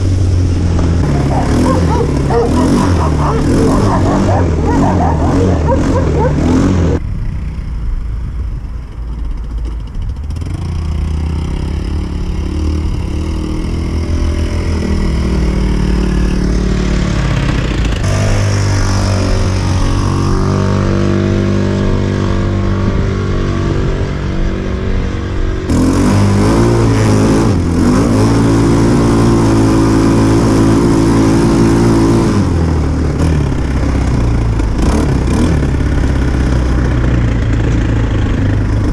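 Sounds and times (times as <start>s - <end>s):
quad bike engine revving: 0.0s - 7.6s, 9.6s - 38.9s.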